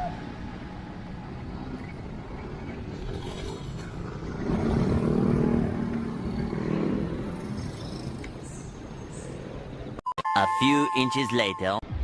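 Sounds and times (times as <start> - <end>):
traffic noise: 0.0 - 11.5
motor vehicle passing: 1.0 - 10.0.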